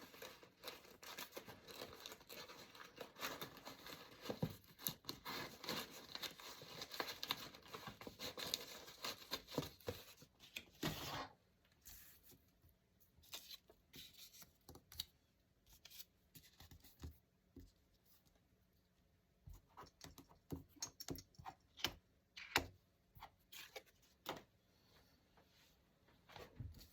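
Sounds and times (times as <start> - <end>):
paper tearing and rustling: 0.0 - 9.9.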